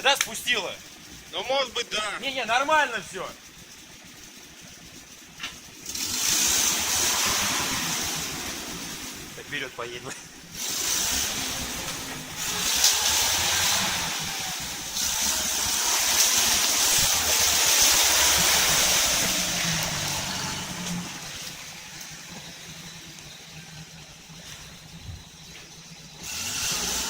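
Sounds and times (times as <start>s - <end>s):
low engine rumble: 0.0s - 27.0s
vehicle splashing through mud: 5.4s - 27.0s.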